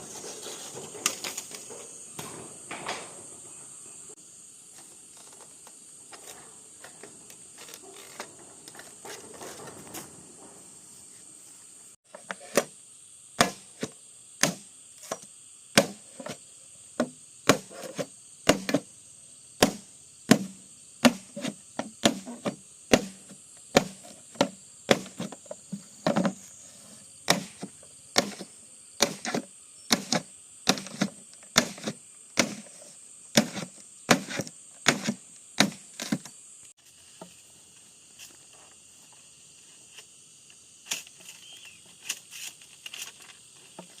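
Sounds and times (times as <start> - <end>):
insect drone: 0.0 - 44.0
bamboo chopped with blade: 13.4 - 16.4, 17.0 - 18.9, 19.6 - 25.4, 27.2 - 36.3.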